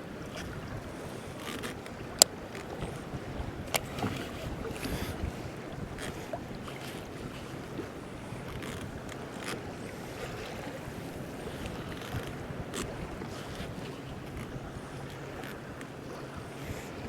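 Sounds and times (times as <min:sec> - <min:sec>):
water lapping against kayak hull: 0:00.0 - 0:17.0
wind buffeting microphone: 0:01.9 - 0:15.4.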